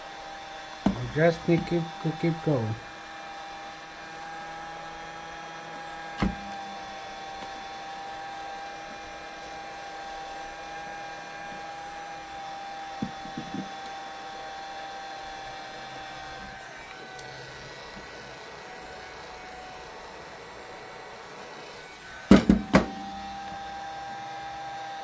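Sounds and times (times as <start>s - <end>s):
heat gun motor whine: 0.0s - 25.0s
sharp knock: 0.8s - 1.1s, 22.3s - 23.0s.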